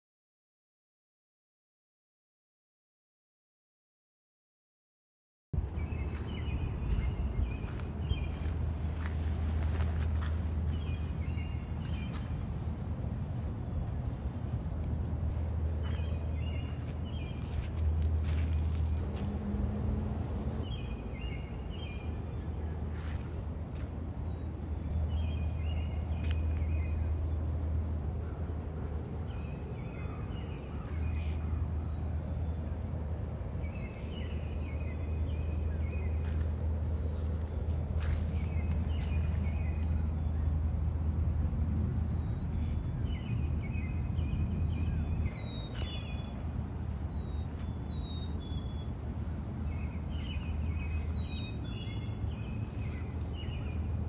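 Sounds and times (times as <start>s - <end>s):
steady low rumble: 5.6s - 54.0s
small bird singing: 49.7s - 53.9s.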